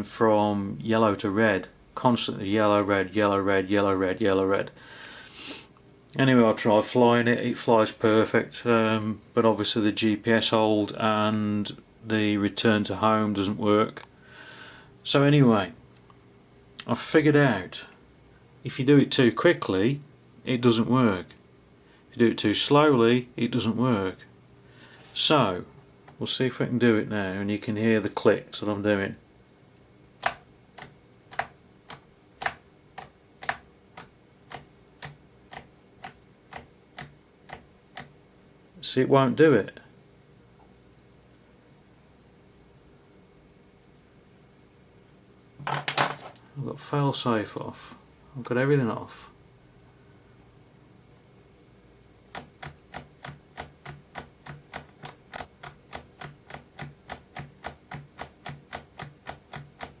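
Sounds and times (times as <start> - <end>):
toggle switch clicking: 30.2 - 38.1.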